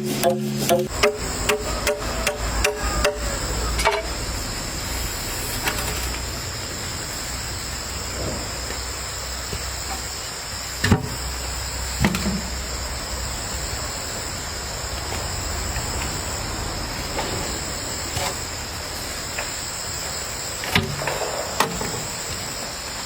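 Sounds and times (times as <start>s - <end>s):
insects droning: 0.0s - 23.0s
sharp knocks: 0.2s - 4.1s.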